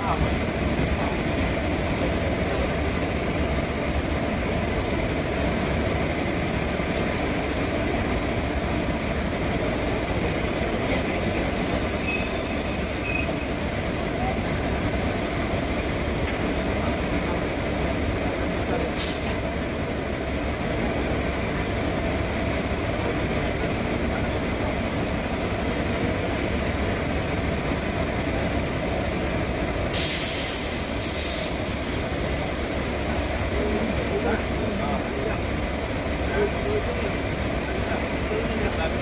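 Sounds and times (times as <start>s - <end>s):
passenger train running noise: 0.0s - 39.0s
brief hiss: 30.0s - 31.7s.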